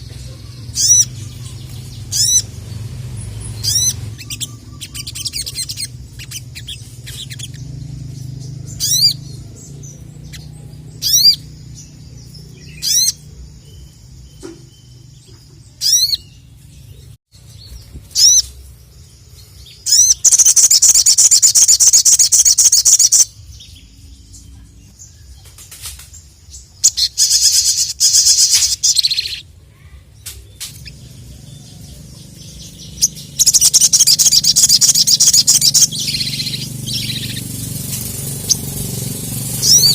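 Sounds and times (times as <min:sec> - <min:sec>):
bird high down-slurred calls: 0:00.0 - 0:07.8
bird rapid high chattering song: 0:00.0 - 0:39.9.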